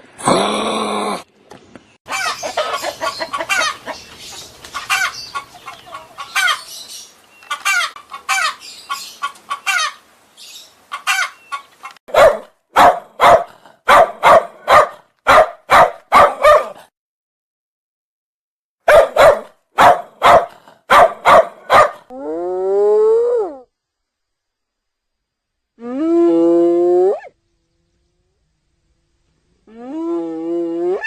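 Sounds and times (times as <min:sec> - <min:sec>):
loud short chicken calls: 0:02.1 - 0:04.0, 0:07.5 - 0:10.0, 0:10.9 - 0:11.6
chickens clucking: 0:02.1 - 0:10.0, 0:10.9 - 0:12.0.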